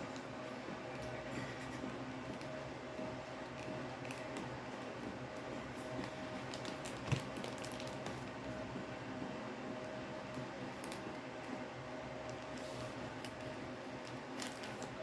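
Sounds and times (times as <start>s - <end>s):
packaging clicks and crinkles: 3.5s - 8.5s, 10.7s - 11.2s, 12.3s - 15.0s.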